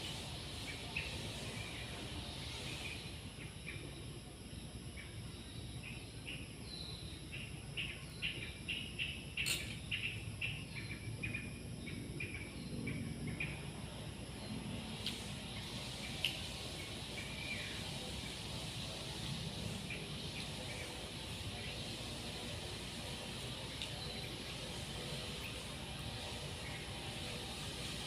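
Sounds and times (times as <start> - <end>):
low background noise: 0.0 - 28.0
small birds chirping: 0.0 - 28.0.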